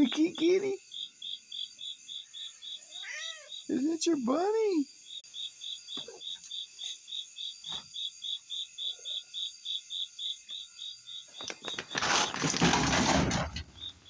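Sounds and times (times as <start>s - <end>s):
cricket chirping: 0.0s - 14.0s
rustling and scraping: 11.4s - 14.0s.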